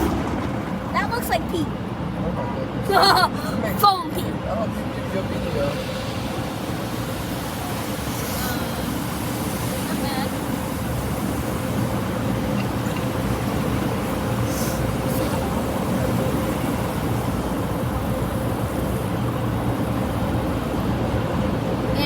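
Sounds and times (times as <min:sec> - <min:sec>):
car wash machinery rumble: 0:00.0 - 0:22.0
water spray hisses: 0:05.7 - 0:20.3.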